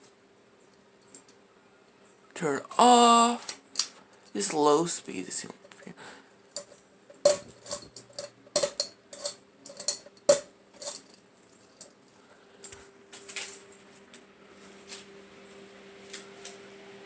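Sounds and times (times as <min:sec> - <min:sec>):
fan motor low hum: 0:06.3 - 0:17.0
fan pull chain rattling and clicking: 0:06.6 - 0:11.2.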